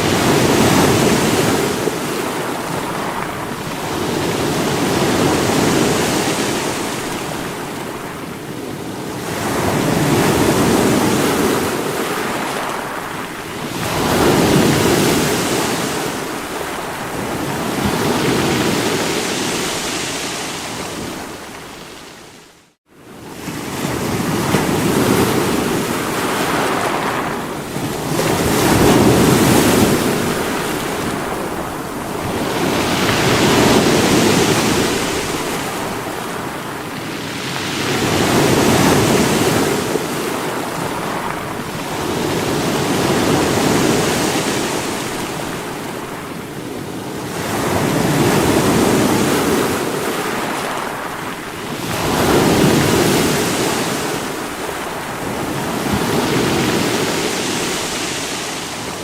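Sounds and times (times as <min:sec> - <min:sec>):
sea waves breaking against rocks: 0:23.8 - 0:46.2.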